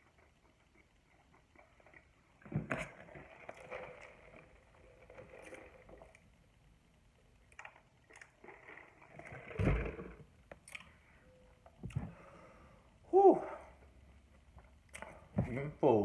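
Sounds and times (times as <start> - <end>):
chewing with wet mouth clicks: 7.5 - 8.8, 10.5 - 11.0, 14.8 - 15.2.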